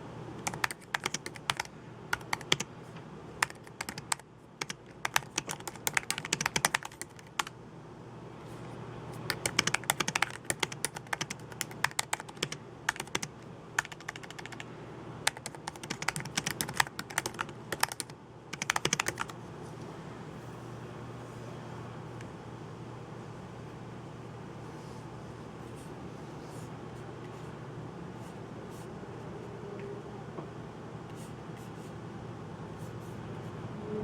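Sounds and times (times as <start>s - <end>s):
typing on computer keyboard: 0.4s - 2.7s, 3.4s - 7.5s, 9.2s - 19.4s.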